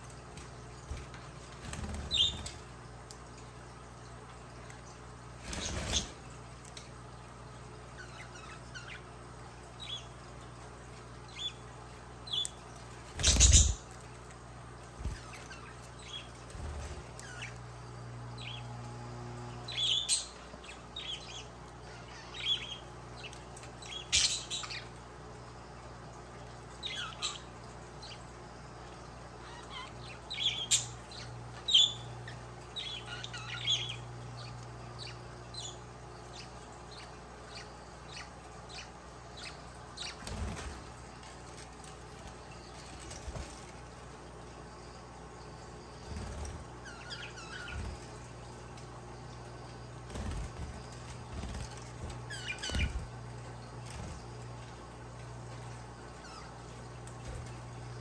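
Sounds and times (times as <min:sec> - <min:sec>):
low steady hum: 0:00.0 - 0:58.0
budgerigars chirping and squawking: 0:01.8 - 0:02.6, 0:13.2 - 0:13.8, 0:19.7 - 0:24.9, 0:46.2 - 0:48.1, 0:50.1 - 0:53.1, 0:56.2 - 0:56.6.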